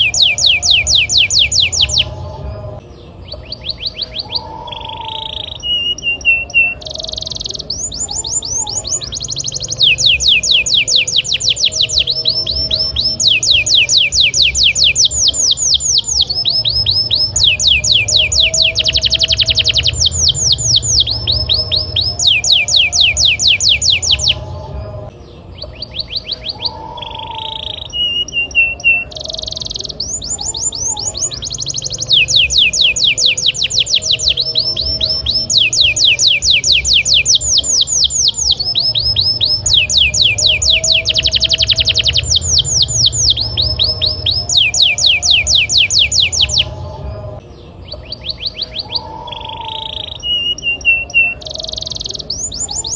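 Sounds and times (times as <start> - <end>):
canary singing trills: 0.0 - 52.9.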